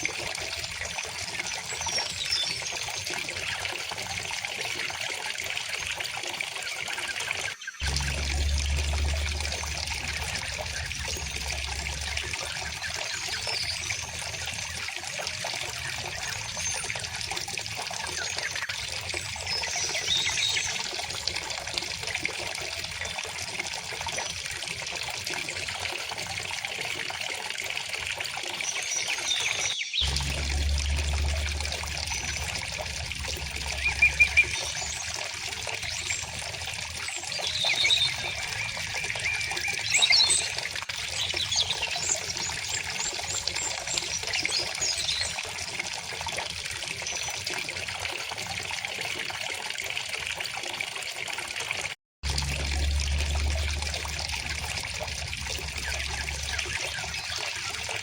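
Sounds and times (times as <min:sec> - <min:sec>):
stream babbling: 0:07.8 - 0:16.9, 0:30.0 - 0:40.4, 0:52.2 - 0:58.0
bird chirps: 0:28.7 - 0:36.3.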